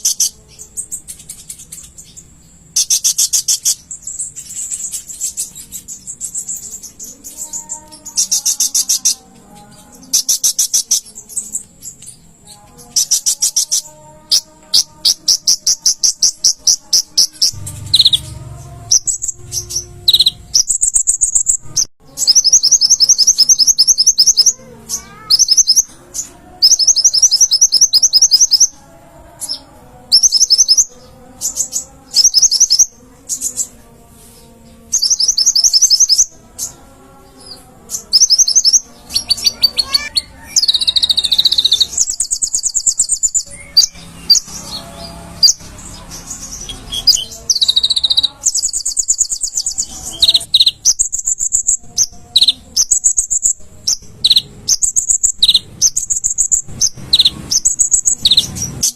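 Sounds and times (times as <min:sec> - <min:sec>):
sunbird chattering trills: 0:12.9 - 0:28.8, 0:38.0 - 0:44.5.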